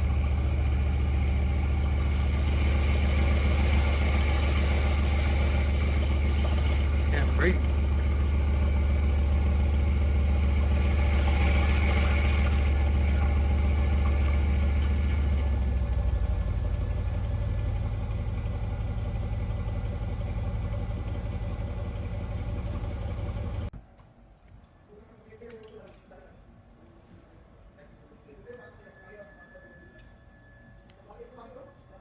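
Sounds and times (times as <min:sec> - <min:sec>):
car engine idling: 0:00.0 - 0:23.7.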